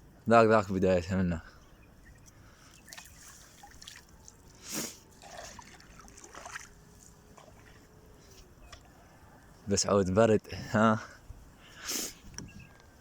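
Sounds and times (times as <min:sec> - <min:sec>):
water trickling: 0:02.7 - 0:07.8
small water splashes: 0:02.7 - 0:07.9.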